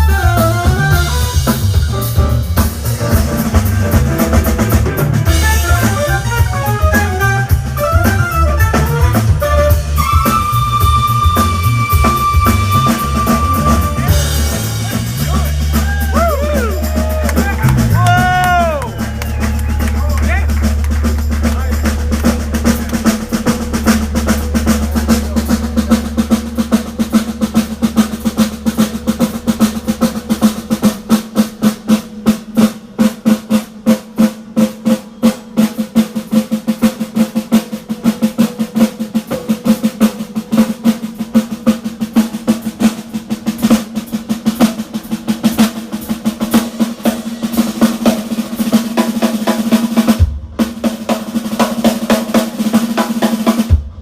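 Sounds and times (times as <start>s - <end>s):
low bass: 0.0s - 31.1s
drum kit played hard: 0.0s - 54.0s.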